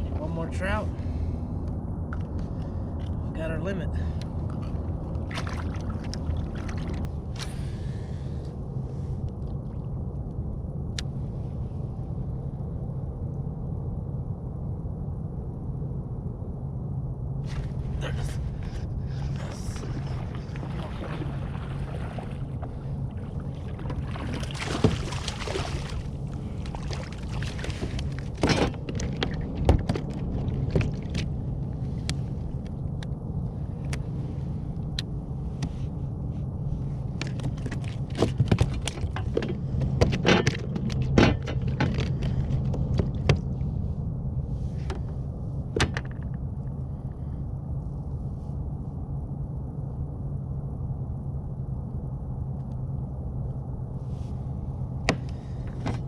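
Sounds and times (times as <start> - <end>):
steady low rumble: 0.0 - 56.0
knocks and clatter on a kayak: 23.6 - 26.0, 26.6 - 31.3, 37.2 - 43.6, 44.8 - 46.4, 55.0 - 56.0.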